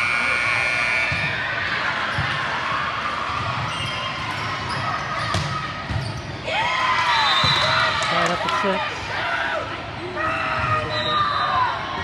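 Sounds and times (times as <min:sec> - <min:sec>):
volleyball bouncing on gym floor: 0:05.2 - 0:06.1.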